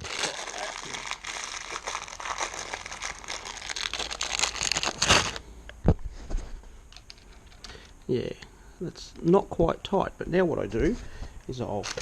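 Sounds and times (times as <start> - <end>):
crinkling rustle with small clicks: 11.8 - 12.0.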